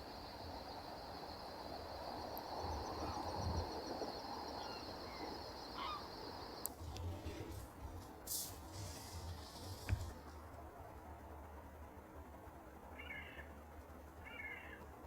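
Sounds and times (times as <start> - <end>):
gulls calling: 0.0 - 6.7
steady outdoor hiss: 0.0 - 15.0
ducks calling: 2.9 - 6.6.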